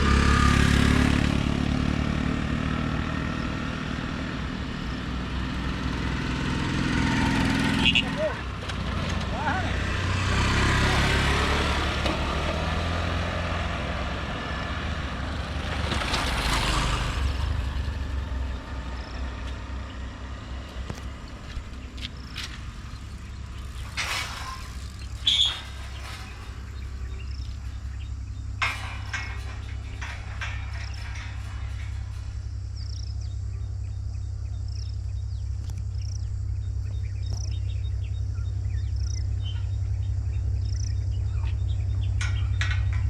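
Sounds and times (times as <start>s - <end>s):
rush of passing vehicle: 0.0s - 32.4s
heavy vehicle engine rumbling: 0.0s - 43.0s.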